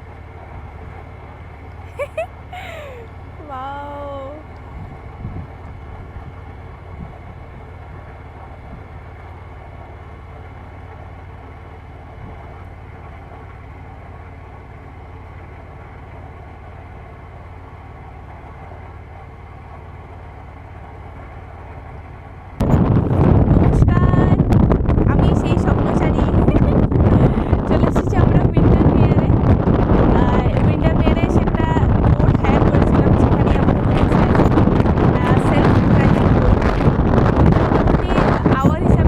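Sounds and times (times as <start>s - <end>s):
motorboat motor droning: 0.0s - 39.0s
wind rushing on microphone: 1.9s - 9.0s, 22.6s - 39.0s.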